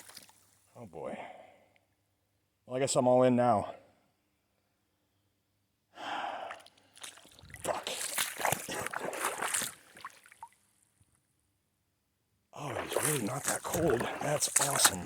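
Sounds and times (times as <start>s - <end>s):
water splashing around legs: 0.0s - 0.4s, 7.0s - 10.6s, 12.6s - 15.0s
person gasping: 6.0s - 6.7s.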